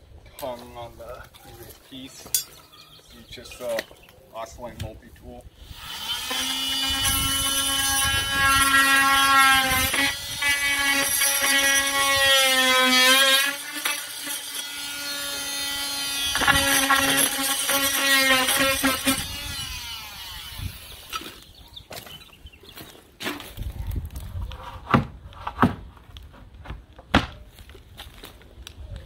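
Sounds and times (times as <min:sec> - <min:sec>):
oscillating tool cutting wood: 0:05.7 - 0:21.6.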